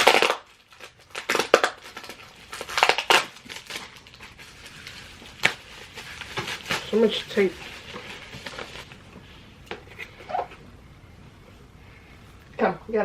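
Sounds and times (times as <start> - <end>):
packing tape ripping: 0.0 - 9.0
packaging crinkling: 0.0 - 10.6.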